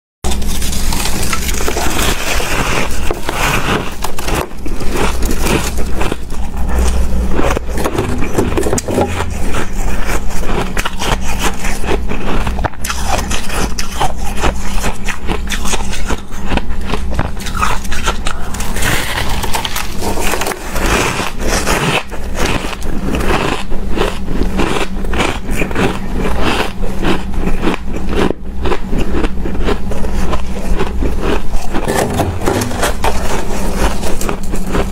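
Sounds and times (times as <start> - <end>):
shaved ice crunching: 0.3 - 16.3, 17.3 - 24.2.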